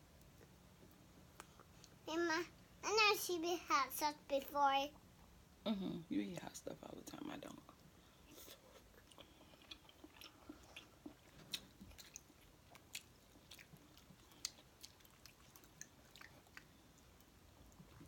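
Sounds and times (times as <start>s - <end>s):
person chewing: 8.3s - 18.0s.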